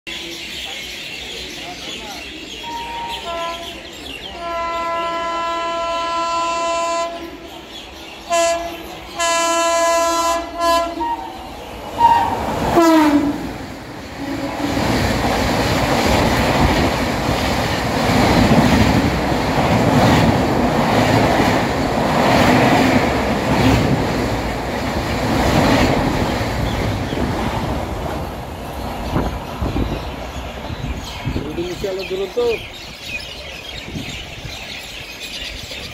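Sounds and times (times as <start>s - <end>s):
train coaches rumbling past: 0.1s - 35.9s
locomotive horn blasts: 2.6s - 7.4s, 8.3s - 11.4s, 12.0s - 13.5s.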